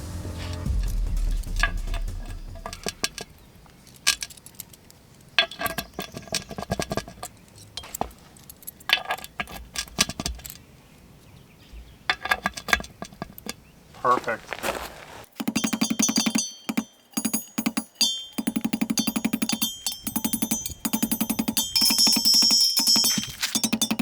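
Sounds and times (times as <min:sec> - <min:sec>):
metal hardware clinking: 0:01.6 - 0:10.8, 0:15.3 - 0:24.0.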